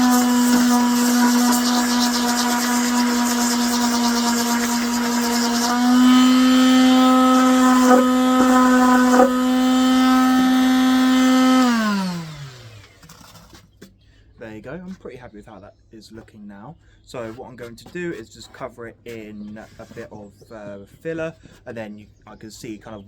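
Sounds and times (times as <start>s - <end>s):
power tool motor running: 0.0s - 13.8s.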